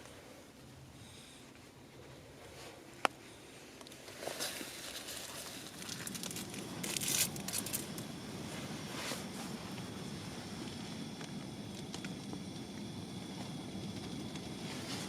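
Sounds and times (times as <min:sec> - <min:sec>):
dry rustling and crinkling: 0:02.4 - 0:09.9.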